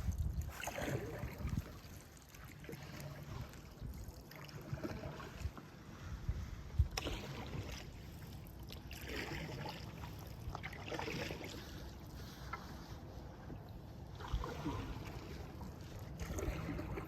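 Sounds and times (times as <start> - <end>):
paddle splashing through water: 0.0 - 17.0.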